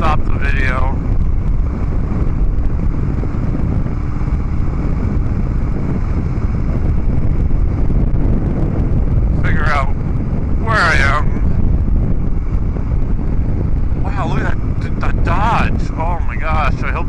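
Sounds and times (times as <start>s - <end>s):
motorcycle engine cruising: 0.0s - 17.0s
wind buffeting microphone: 0.0s - 17.0s.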